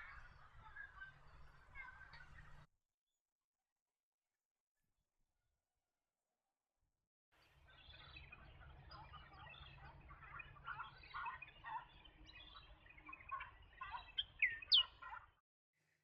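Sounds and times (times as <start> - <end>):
flock of birds calling: 0.0 - 2.7, 7.7 - 15.3.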